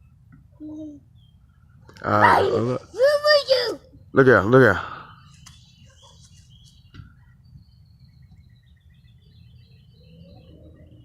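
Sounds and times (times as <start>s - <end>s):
faint bird chirping: 0.0s - 11.0s.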